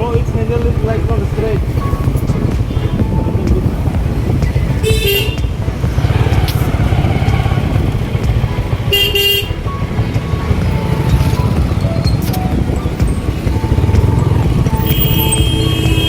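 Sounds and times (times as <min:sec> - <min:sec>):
motorcycle engine rumbling: 0:00.0 - 0:16.0
vehicle horn honking: 0:02.0 - 0:03.5, 0:04.7 - 0:07.8, 0:08.9 - 0:09.7, 0:10.9 - 0:16.0.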